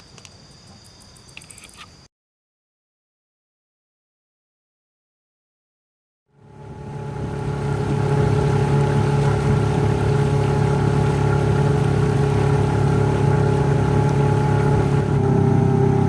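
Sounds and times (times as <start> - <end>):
small boat engine running: 6.3 - 16.0.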